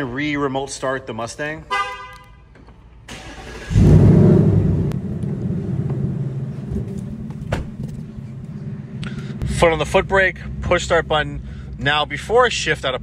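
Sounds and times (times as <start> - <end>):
car engine starting and idling: 2.6 - 13.0.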